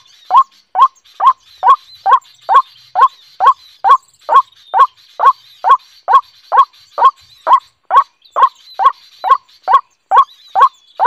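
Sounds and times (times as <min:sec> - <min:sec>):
bird call rising in pitch: 0:00.0 - 0:10.8
faint high chirping: 0:00.0 - 0:11.0.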